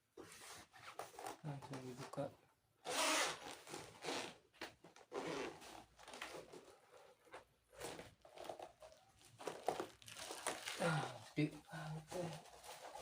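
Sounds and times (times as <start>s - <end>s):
packaging rustling and scraping: 5.0s - 11.3s, 12.0s - 13.0s.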